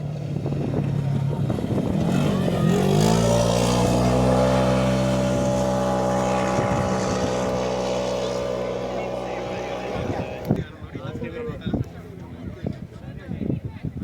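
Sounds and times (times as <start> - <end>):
rally car engine accelerating: 0.0 - 10.7.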